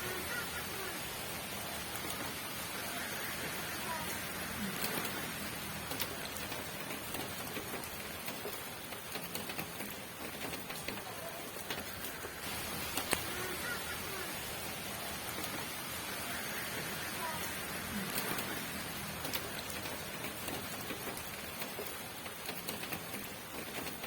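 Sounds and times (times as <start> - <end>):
raindrops ticking close by: 0.0 - 24.0
steady rain hiss: 0.0 - 24.0.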